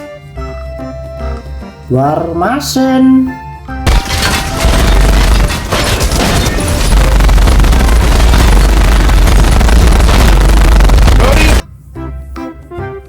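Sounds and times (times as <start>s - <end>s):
booming crashing action effects: 3.9s - 11.6s.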